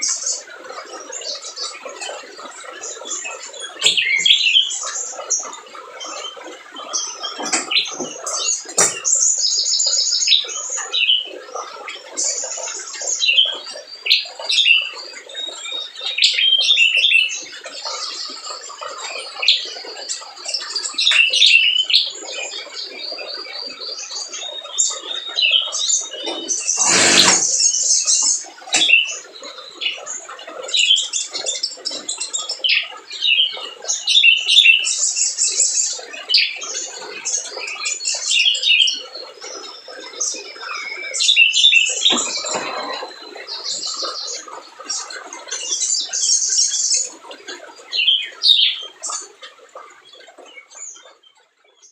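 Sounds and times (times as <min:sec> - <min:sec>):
bird singing high chirps and trills: 0:00.0 - 0:11.3
brief loud noise: 0:26.8 - 0:27.6.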